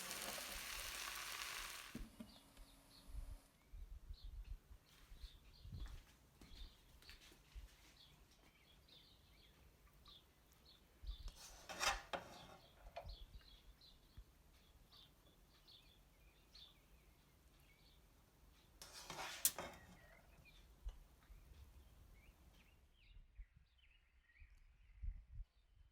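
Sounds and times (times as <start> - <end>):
rubbing and scraping: 11.3 - 12.8, 18.8 - 20.1.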